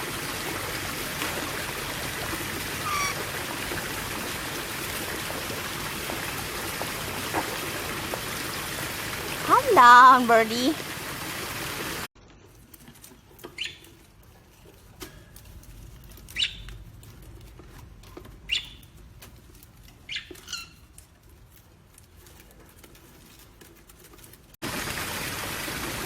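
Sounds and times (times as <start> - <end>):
parrot chirping: 2.8 - 3.3, 13.6 - 13.9, 16.3 - 16.7, 18.5 - 19.0, 20.1 - 20.9.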